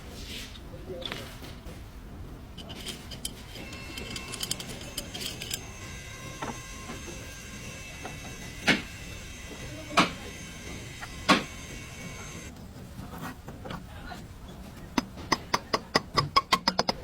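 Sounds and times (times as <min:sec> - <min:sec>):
faint high whine: 0:03.6 - 0:12.5
sharp knocks: 0:08.0 - 0:08.9, 0:10.0 - 0:11.6.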